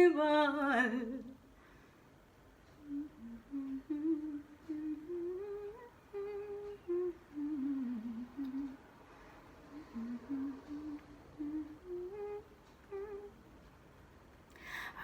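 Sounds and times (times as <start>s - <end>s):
woman humming a melody: 2.8s - 8.8s, 9.7s - 13.4s.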